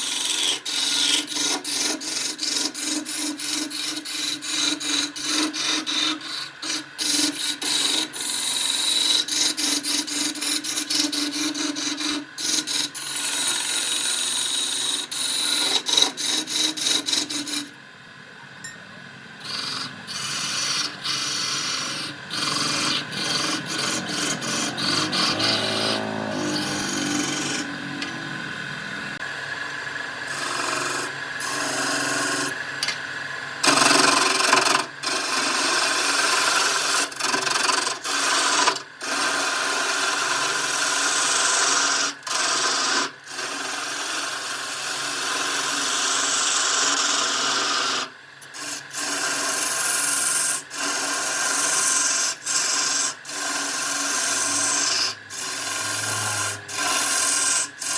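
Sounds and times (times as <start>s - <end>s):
tool scraping wood on lathe: 0.0s - 17.8s, 19.4s - 28.2s, 30.3s - 33.0s, 33.6s - 57.9s.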